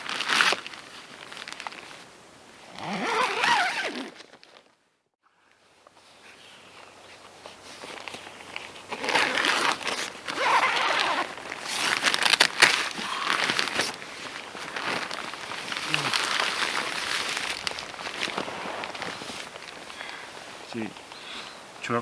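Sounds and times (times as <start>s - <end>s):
sharp fabric crackles: 0.0s - 2.0s, 2.7s - 4.7s, 7.8s - 20.8s
synthetic fabric rustling: 2.8s - 4.7s, 7.0s - 20.7s.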